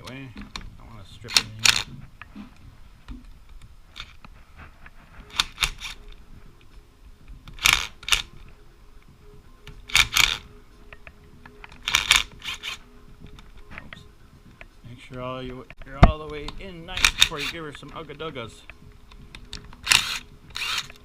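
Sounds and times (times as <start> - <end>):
sharp metallic tool clicks: 16.4 - 17.6, 19.4 - 21.0.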